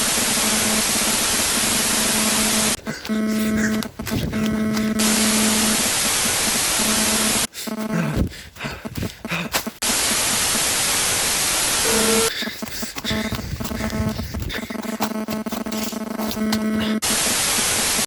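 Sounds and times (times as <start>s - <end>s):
low electrical hum: 0.0s - 9.2s, 11.0s - 17.9s
electronic static hiss: 0.0s - 18.0s
crackling: 0.1s - 8.1s, 11.9s - 17.6s.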